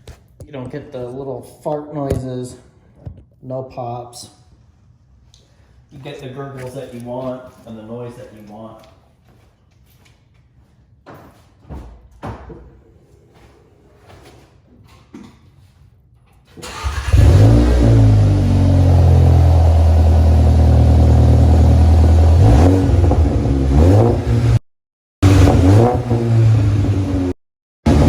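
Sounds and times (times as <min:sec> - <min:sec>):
car exhaust low drone: 0:17.1 - 0:24.6.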